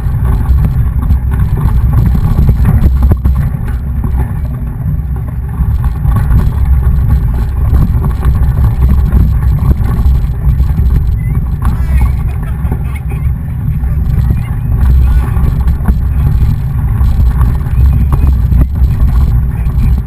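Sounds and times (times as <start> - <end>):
bike tyre noise: 0.0 - 20.0
wind buffeting microphone: 0.0 - 20.0.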